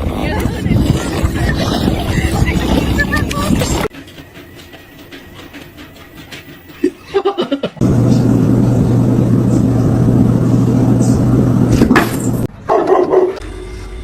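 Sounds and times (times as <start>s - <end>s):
loud machine humming: 7.8s - 12.5s.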